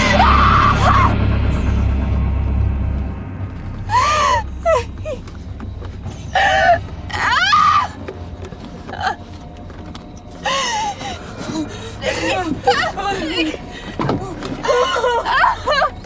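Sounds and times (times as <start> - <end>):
woman screaming: 0.0 - 1.2, 6.4 - 8.0, 12.2 - 13.6, 14.6 - 15.9
low steady rumble: 0.0 - 16.0.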